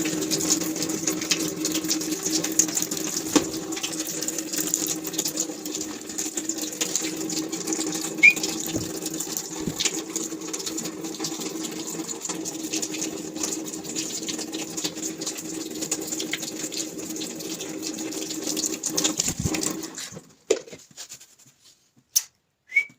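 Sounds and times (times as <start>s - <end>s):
water running and splashing: 0.0s - 20.7s
parrot chirp: 8.2s - 8.4s.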